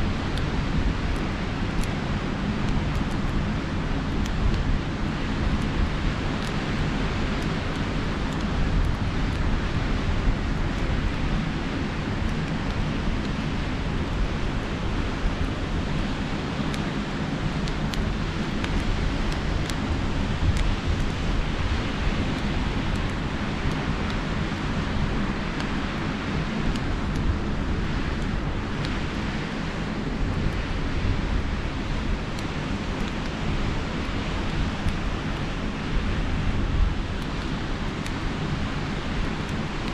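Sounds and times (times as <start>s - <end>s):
campfire crackling and popping: 0.0s - 39.9s
wind rumbling on microphone: 0.0s - 39.9s.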